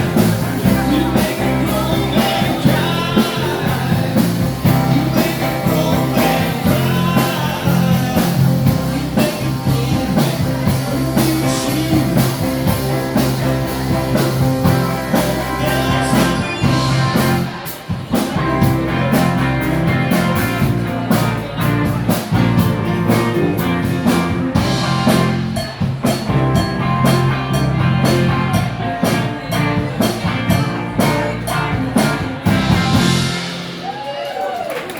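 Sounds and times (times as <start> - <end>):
person singing: 0.0 - 25.4
drum kit: 0.0 - 34.9
electric guitar: 0.0 - 34.9.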